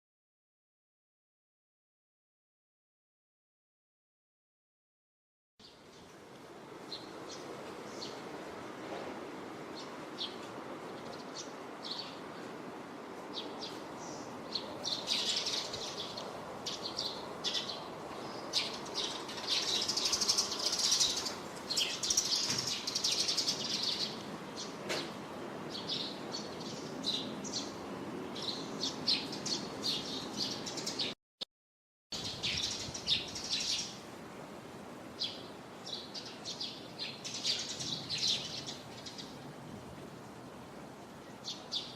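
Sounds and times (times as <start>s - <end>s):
low background noise: 5.6s - 31.1s, 32.2s - 41.9s
small birds chirping: 6.8s - 8.8s, 9.6s - 31.2s, 32.2s - 34.1s, 35.2s - 39.5s, 41.1s - 41.9s.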